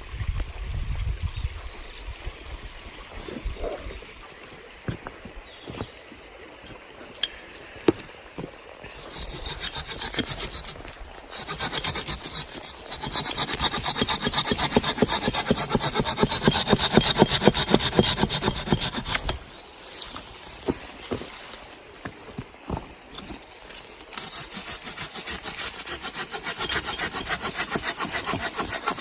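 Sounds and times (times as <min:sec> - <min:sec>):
handsaw cutting wood: 0:08.9 - 0:19.5, 0:23.2 - 0:29.0.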